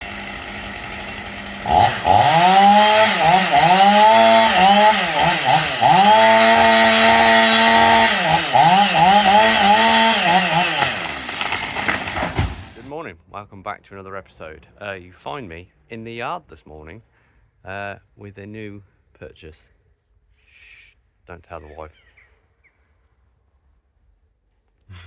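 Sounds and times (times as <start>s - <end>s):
chainsaw revving: 0.0s - 12.9s.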